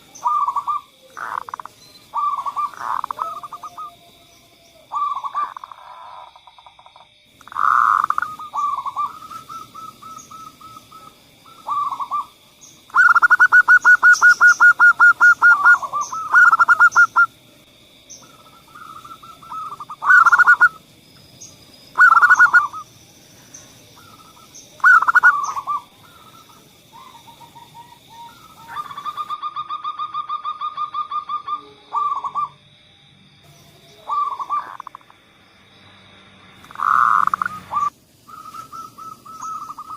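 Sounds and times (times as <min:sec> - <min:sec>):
doves cooing: 0:00.0 - 0:06.8, 0:07.4 - 0:17.4, 0:18.1 - 0:32.6, 0:33.6 - 0:35.1, 0:36.6 - 0:39.9
faint small-bird chirps: 0:36.8 - 0:39.9.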